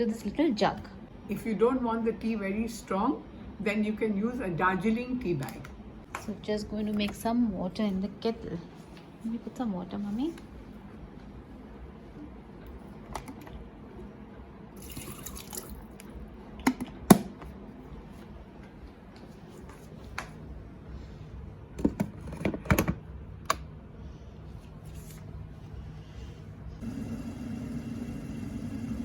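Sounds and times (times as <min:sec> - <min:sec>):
low steady hum: 0:00.0 - 0:29.0
water running into kettle: 0:14.8 - 0:15.8, 0:26.8 - 0:29.0.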